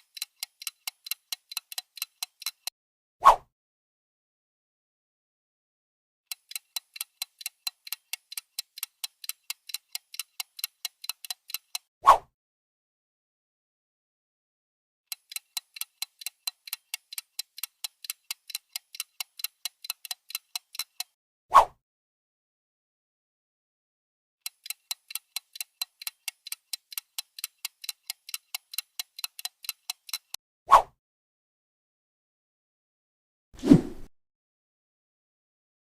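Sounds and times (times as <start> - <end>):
clock ticking countdown: 0.0 - 2.7, 6.3 - 11.9, 15.1 - 21.2, 24.4 - 30.4.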